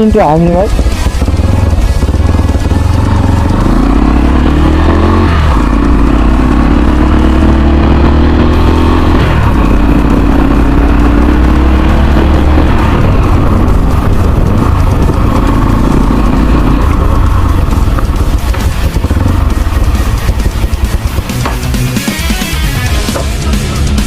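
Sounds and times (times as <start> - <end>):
motorcycle engine accelerating: 0.0 - 24.0
wind rumble on microphone: 4.9 - 21.5.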